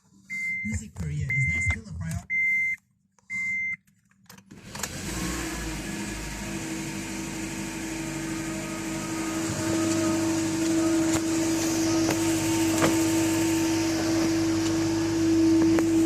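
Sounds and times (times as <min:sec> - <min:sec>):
short beeps: 0:00.3 - 0:03.8
car engine starting and idling: 0:04.3 - 0:16.0.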